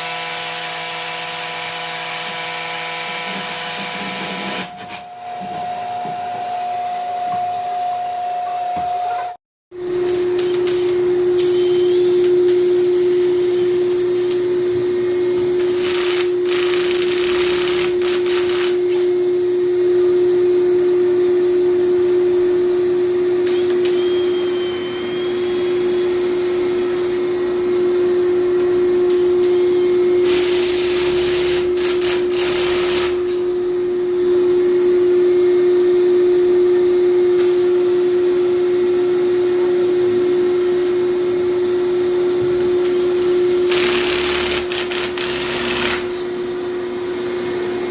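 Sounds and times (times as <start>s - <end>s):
electric motor hum: 38.1s - 47.9s.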